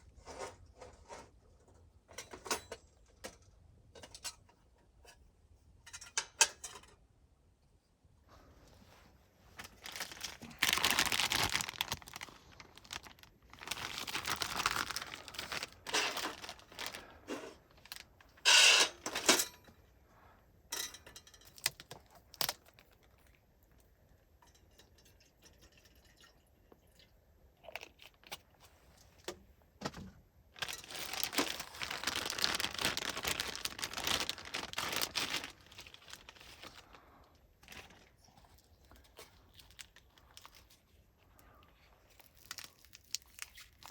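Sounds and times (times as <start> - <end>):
crinkling and rustling: 0.0 - 5.2, 8.2 - 19.9, 20.8 - 23.9, 27.7 - 43.9.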